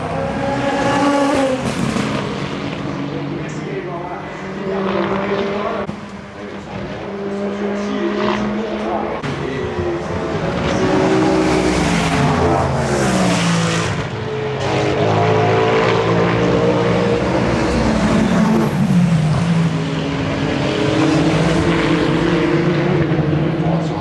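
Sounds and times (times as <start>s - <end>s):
race cars passing by: 0.0s - 24.0s.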